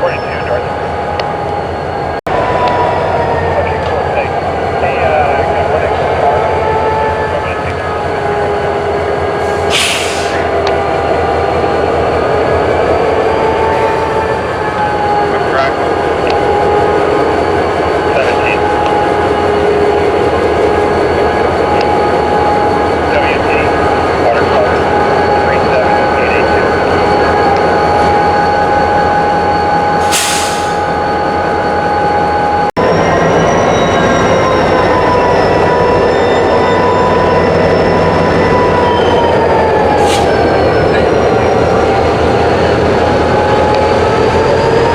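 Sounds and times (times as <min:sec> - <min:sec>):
freight train rumble: 0:00.0 - 0:44.9
hiss burst: 0:09.5 - 0:10.4, 0:30.0 - 0:30.8.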